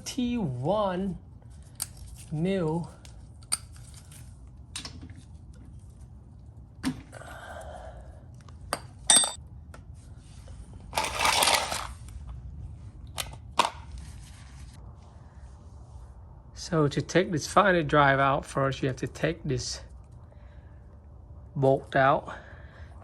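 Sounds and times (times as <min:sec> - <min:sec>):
metal hand tools clinking: 0:09.1 - 0:09.4
metal tools rattling: 0:09.1 - 0:09.4.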